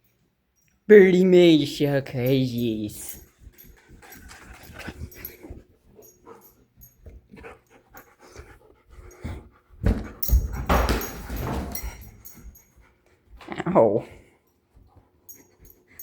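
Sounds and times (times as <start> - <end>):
puppy panting and snuffling: 3.2 - 10.7.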